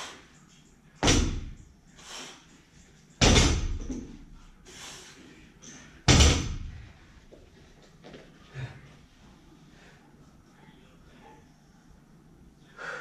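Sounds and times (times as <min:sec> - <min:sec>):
barbell thudding on wooden floor: 0:01.0 - 0:01.6, 0:03.2 - 0:04.2, 0:06.1 - 0:06.8.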